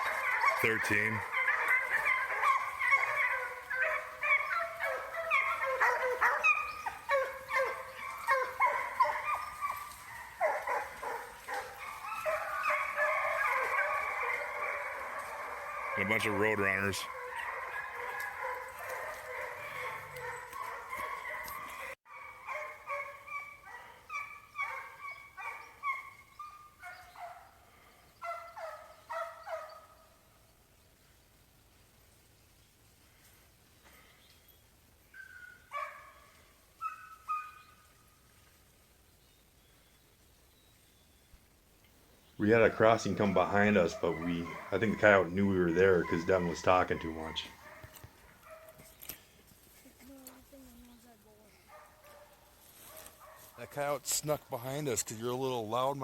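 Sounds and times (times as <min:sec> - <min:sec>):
hounds baying and yipping: 0:00.0 - 0:30.2, 0:35.0 - 0:38.1, 0:42.4 - 0:49.9, 0:51.6 - 0:54.0.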